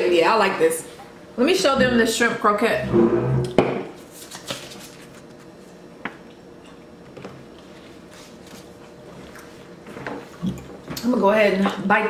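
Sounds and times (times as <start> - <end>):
low steady hum: 0.0 - 4.1
faint chewing: 7.5 - 11.1.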